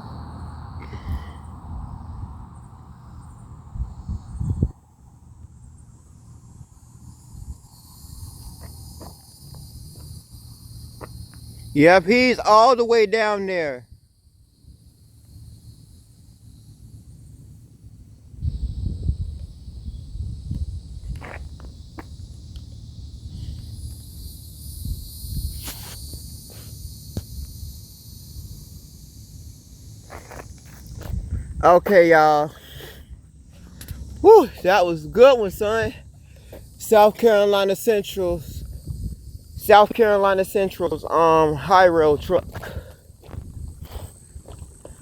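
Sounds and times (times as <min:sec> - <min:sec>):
wind rumble on microphone: 0:00.0 - 0:09.0, 0:16.8 - 0:29.0, 0:29.7 - 0:31.8, 0:38.1 - 0:45.0
insects droning: 0:00.0 - 0:45.0
footstep clicks and scuffs: 0:08.4 - 0:10.2, 0:11.0 - 0:11.5, 0:20.6 - 0:22.7, 0:30.0 - 0:31.4, 0:42.3 - 0:45.0.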